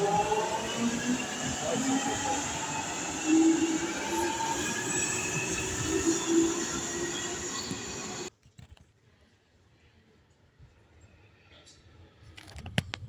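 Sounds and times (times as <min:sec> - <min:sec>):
train rumble on rails: 0:00.0 - 0:08.3
train wheels squealing: 0:00.0 - 0:08.3.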